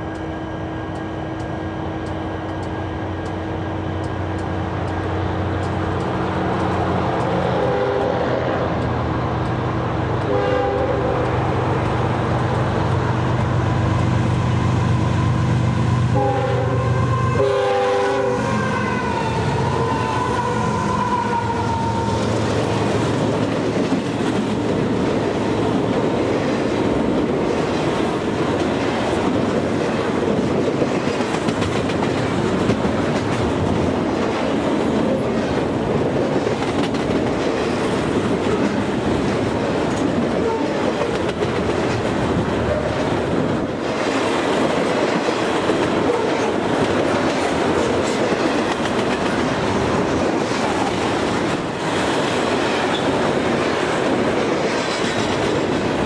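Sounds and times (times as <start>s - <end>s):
container cars rumbling clickety-clack: 0.0s - 10.4s, 19.8s - 56.0s
diesel locomotive engines running: 0.0s - 56.0s
train air horn blasts: 7.5s - 8.6s, 10.2s - 11.3s, 16.1s - 22.4s, 40.4s - 40.8s.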